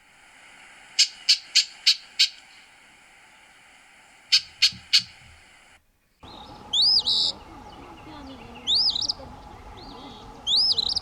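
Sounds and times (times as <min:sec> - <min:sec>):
bird calling sharp notes: 0:01.0 - 0:02.8, 0:04.3 - 0:05.6, 0:06.2 - 0:11.0.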